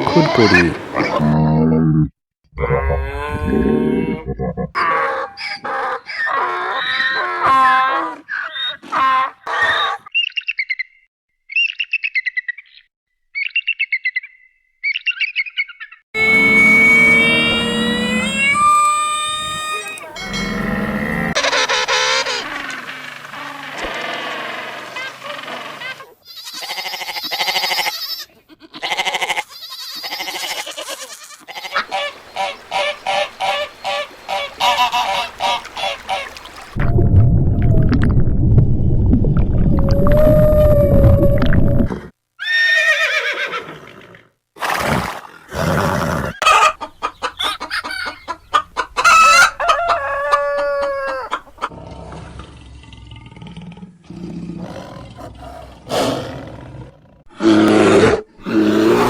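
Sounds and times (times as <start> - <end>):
waterfowl honking: 8.4 - 10.1, 16.2 - 22.7, 31.5 - 36.8, 46.4 - 51.7.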